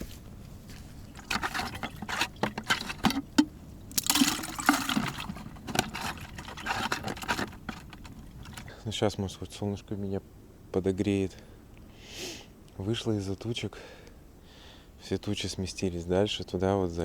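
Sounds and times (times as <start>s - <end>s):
fish splashing in a jar: 1.0s - 8.7s.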